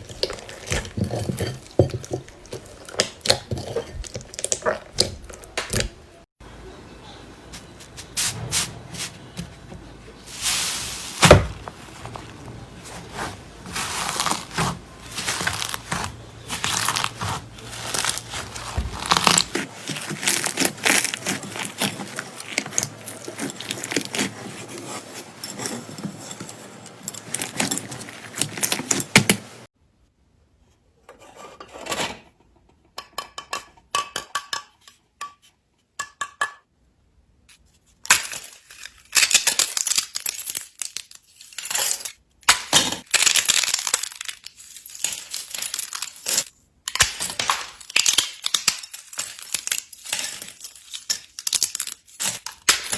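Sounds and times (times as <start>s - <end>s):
slime crackling and squelching: 0.0s - 6.1s, 10.3s - 25.2s, 43.0s - 52.9s.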